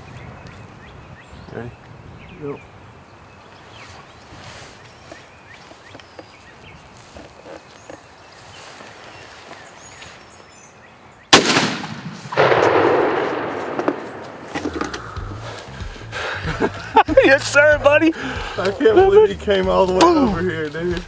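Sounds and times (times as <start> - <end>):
faint outdoor background: 0.0 - 21.0
gunshot: 11.4 - 15.2.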